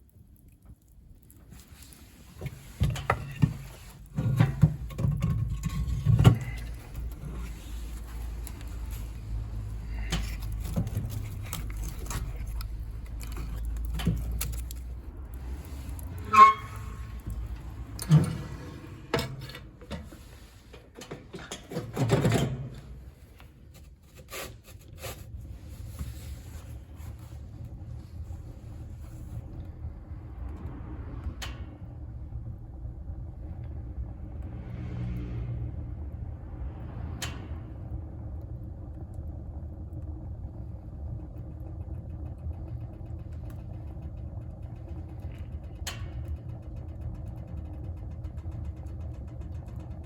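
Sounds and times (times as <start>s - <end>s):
steady low rumble: 0.0s - 20.7s, 25.4s - 50.0s
metallic ring: 16.2s - 17.2s.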